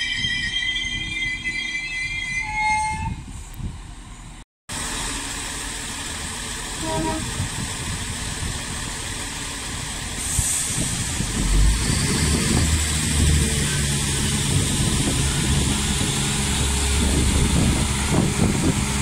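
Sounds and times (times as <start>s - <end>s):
train brake squeal: 0.0s - 3.5s, 10.2s - 12.7s
diesel railcar engine rumble: 0.0s - 19.0s.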